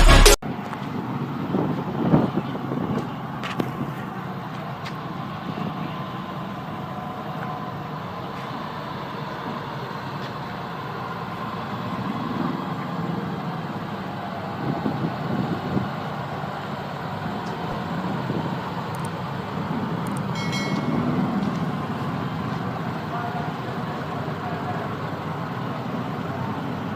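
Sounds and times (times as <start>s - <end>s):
short high-pitched tone: 0.0s - 0.4s, 20.4s - 21.4s
heavy truck running: 0.0s - 26.9s
road noise: 0.0s - 26.9s.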